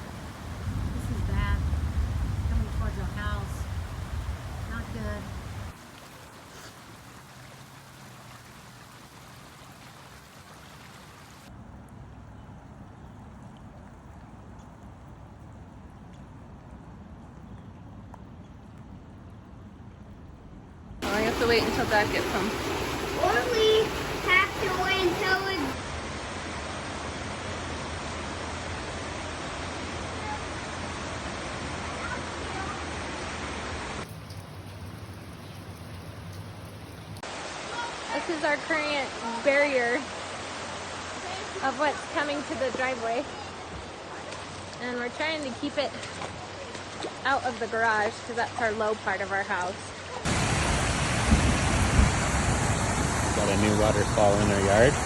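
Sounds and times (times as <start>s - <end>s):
floodwater rushing: 0.0s - 11.5s, 21.0s - 55.0s.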